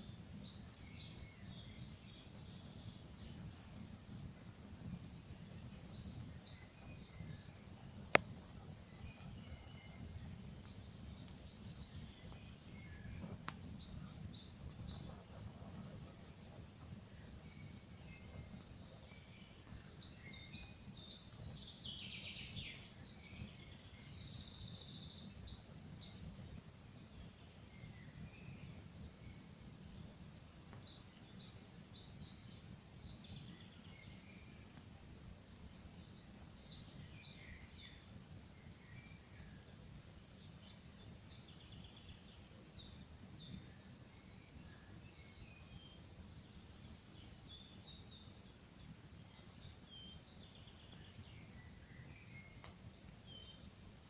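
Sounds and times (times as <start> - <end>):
songbirds trilling: 0.0 - 54.0
campfire burning: 9.7 - 20.0.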